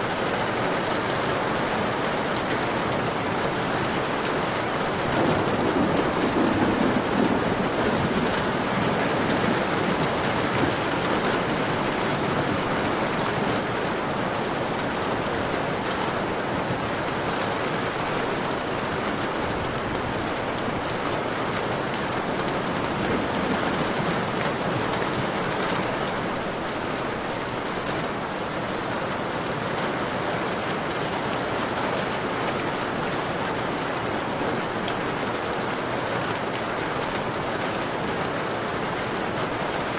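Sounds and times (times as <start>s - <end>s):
heavy rain on a window: 0.0s - 39.9s
low rumble of thunder: 5.0s - 13.2s.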